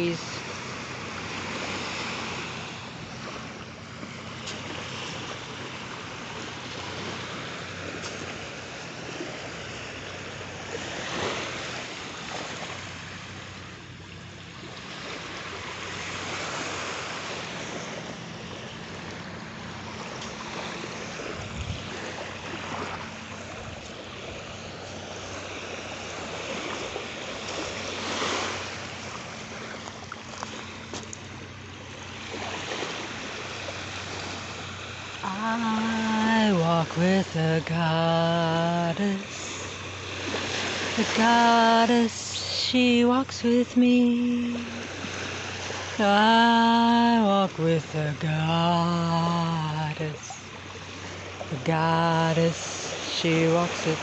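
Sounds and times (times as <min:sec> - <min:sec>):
waves washing on beach: 0:00.0 - 0:54.0
wind on microphone: 0:21.2 - 0:24.0.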